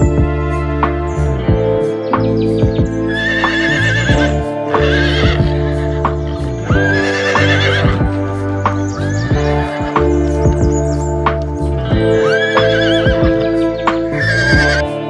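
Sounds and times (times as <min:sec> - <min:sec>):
background music: 0:00.0 - 0:15.0
horse whinnying: 0:03.1 - 0:08.1, 0:09.0 - 0:10.2, 0:12.2 - 0:14.8.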